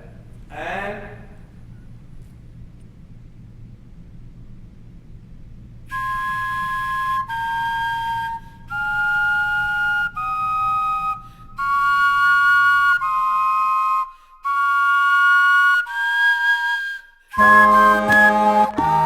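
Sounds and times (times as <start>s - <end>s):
vegetable wind instruments melody: 5.9s - 19.0s.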